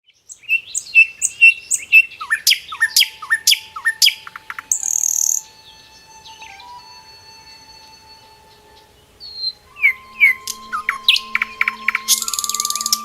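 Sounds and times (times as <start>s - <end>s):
bird song: 0.0s - 13.0s
faint steady tones: 2.7s - 13.0s.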